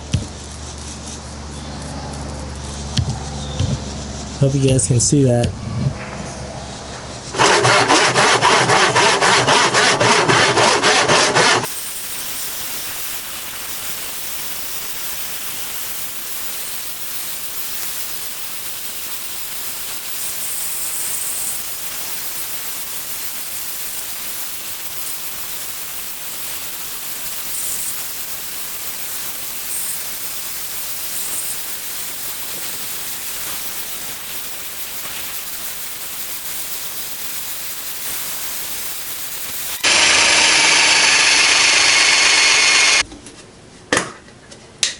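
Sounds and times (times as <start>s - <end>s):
fast abrasive strokes: 7.1s - 43.0s
steady hiss: 11.6s - 43.0s.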